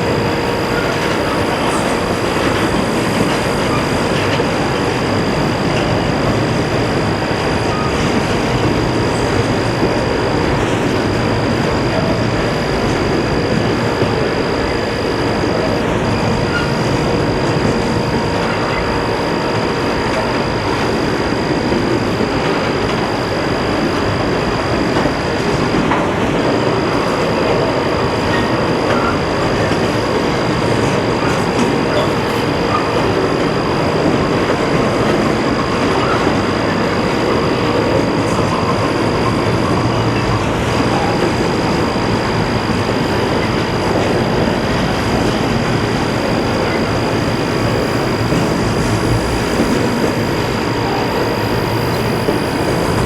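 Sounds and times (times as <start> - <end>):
train wheels rumbling on rail: 0.0 - 53.0
steady high-pitched tone: 37.3 - 53.0.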